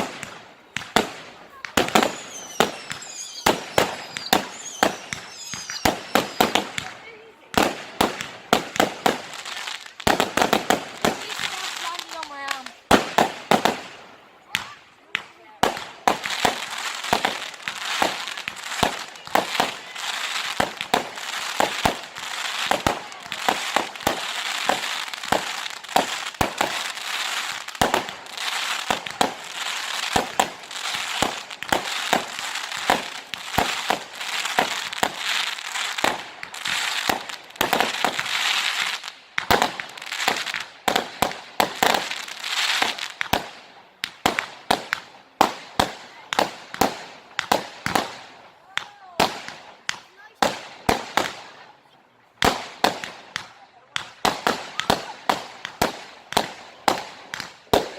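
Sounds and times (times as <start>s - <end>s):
fireworks banging: 0.0s - 51.7s, 52.4s - 57.9s
fireworks crackle: 0.0s - 57.9s.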